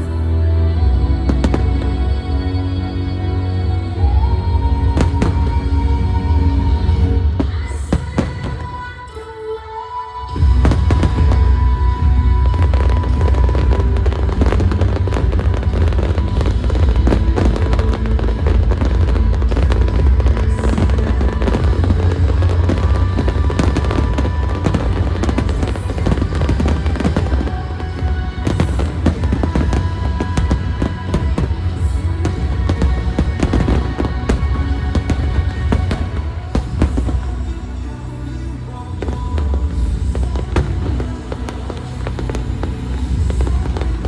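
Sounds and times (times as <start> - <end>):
loud music soundtrack: 0.0 - 44.0
fireworks bangs and crackles: 1.3 - 2.0, 4.8 - 9.2, 10.3 - 37.8, 39.0 - 44.0.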